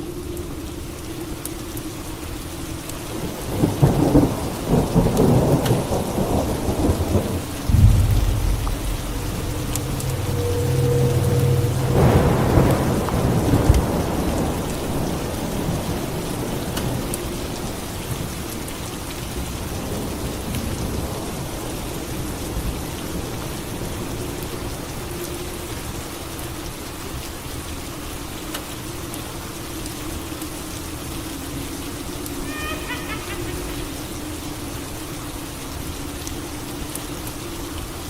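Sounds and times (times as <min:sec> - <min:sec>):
steady rain: 0:00.0 - 0:38.0
thunder clap rumbling: 0:03.5 - 0:17.1.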